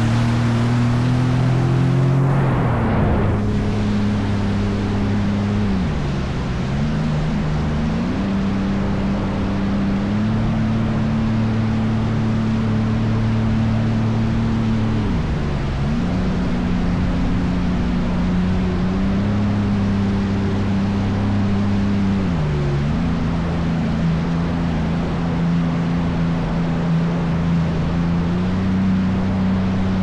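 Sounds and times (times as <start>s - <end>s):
jet ski engine running: 0.0s - 30.0s
rush of wind and spray: 0.0s - 30.0s.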